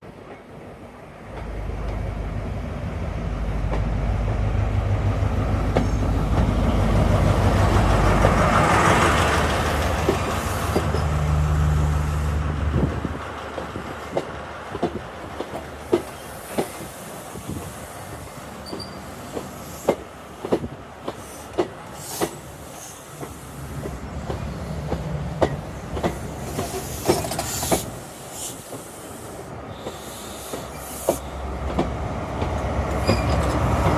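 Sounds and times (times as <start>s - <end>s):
diesel train passing: 0.0s - 33.9s
train wheels clicking over rail joints: 5.6s - 11.3s, 13.2s - 33.9s.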